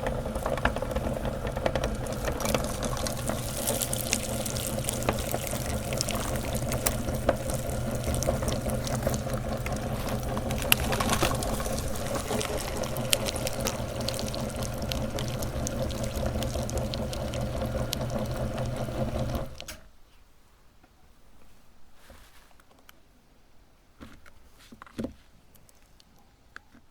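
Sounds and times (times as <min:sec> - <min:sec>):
electric meat grinder motor humming: 0:00.0 - 0:19.7
sharp clicks of grinding candy: 0:00.0 - 0:19.7.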